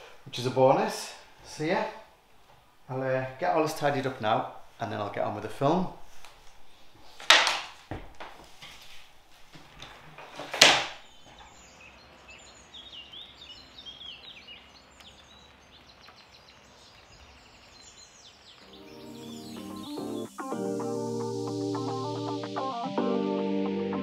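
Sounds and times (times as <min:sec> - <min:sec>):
birds chirping and singing: 0:11.1 - 0:20.9.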